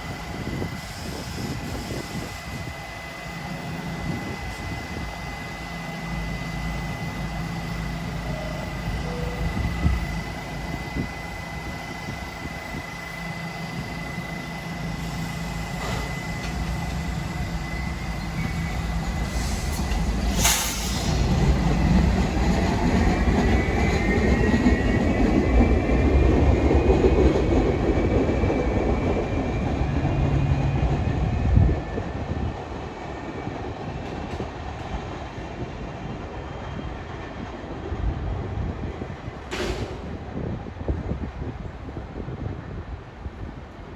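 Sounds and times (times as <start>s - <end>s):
subway train rumbling: 0.0s - 43.9s.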